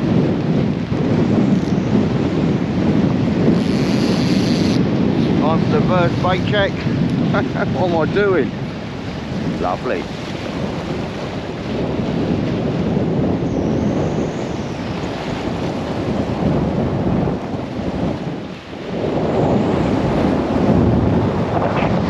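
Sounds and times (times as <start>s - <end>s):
waves: 0.0s - 22.0s
wind buffeting microphone: 0.0s - 22.0s.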